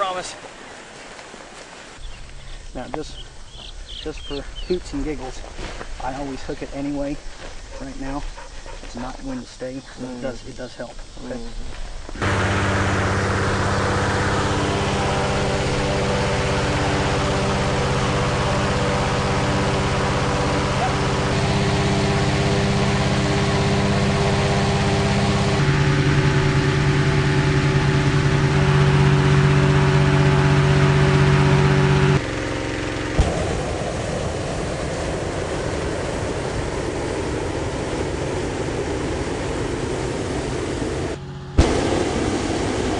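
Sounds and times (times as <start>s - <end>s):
propane burner firing: 32.2s - 42.9s.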